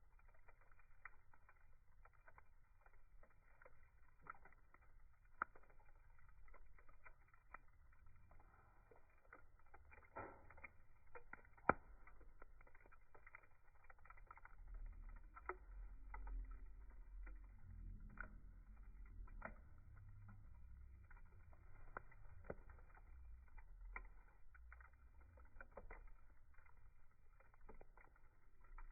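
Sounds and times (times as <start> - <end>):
wood fire crackling: 0.0 - 28.9
low rumble: 14.4 - 26.5.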